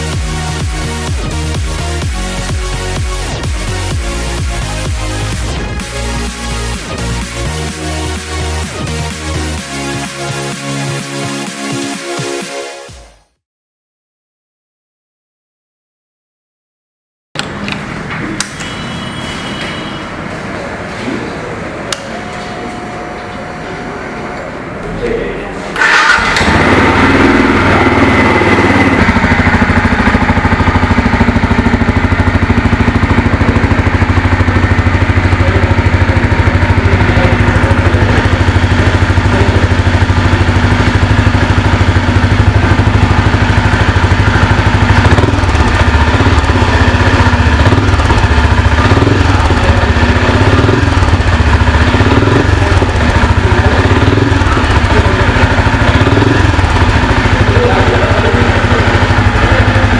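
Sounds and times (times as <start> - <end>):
motorcycle engine idling: 17.9 - 59.9.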